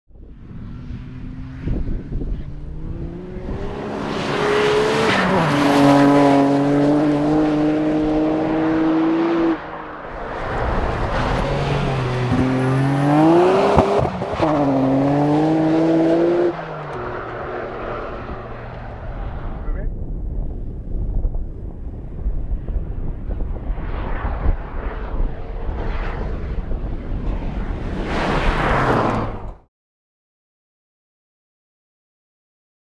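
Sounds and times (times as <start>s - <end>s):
racing engine accelerating hard: 0.5s - 19.8s, 24.5s - 29.6s.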